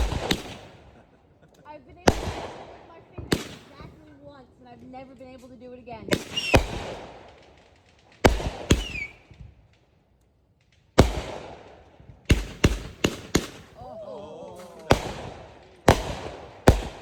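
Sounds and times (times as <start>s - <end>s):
fireworks booming bangs: 0.0s - 1.2s, 1.8s - 4.4s, 5.4s - 9.9s, 10.6s - 14.0s, 14.6s - 17.0s.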